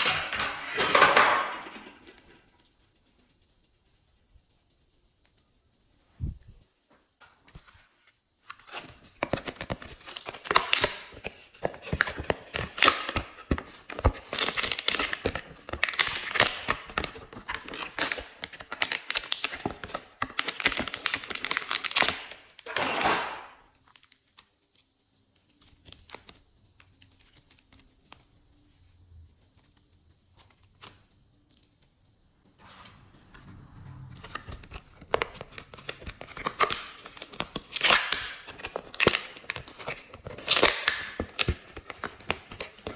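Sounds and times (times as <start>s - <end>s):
slime squishing and popping: 34.8s - 39.8s.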